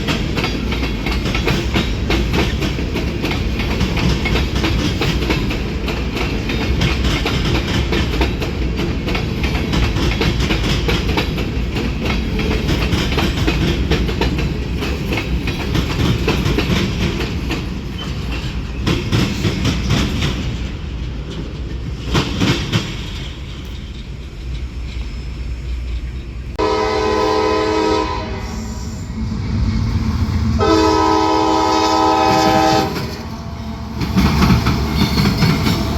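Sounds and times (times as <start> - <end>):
train wheels clickety-clack: 0.0 - 28.3, 29.3 - 35.9
train rumble: 0.0 - 35.9
locomotive horn: 26.6 - 29.0, 30.6 - 33.3.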